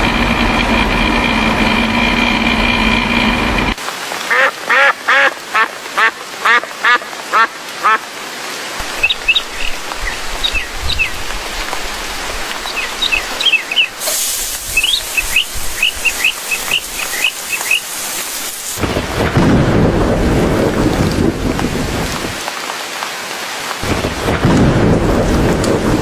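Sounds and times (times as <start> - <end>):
thunder rumbling: 0.0 - 3.8, 14.7 - 22.4, 23.8 - 26.0
steady rain: 0.0 - 26.0
small birds chirping: 8.9 - 11.4, 12.6 - 14.0, 14.6 - 18.1.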